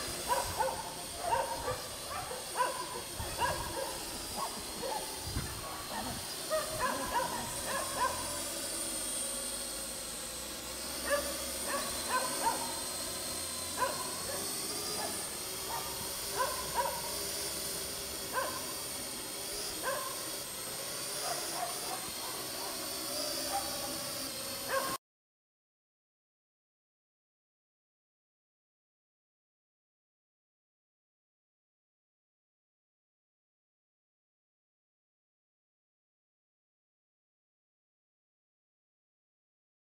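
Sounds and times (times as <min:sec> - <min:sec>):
drone rotors whining: 0:00.0 - 0:25.0.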